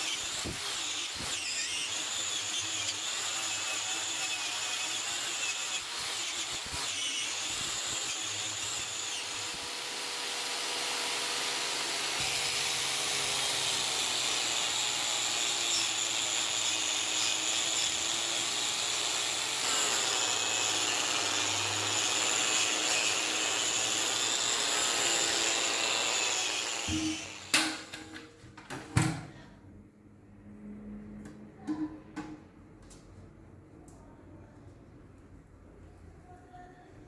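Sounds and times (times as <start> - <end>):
power tool whining on metal: 0.0 - 27.9.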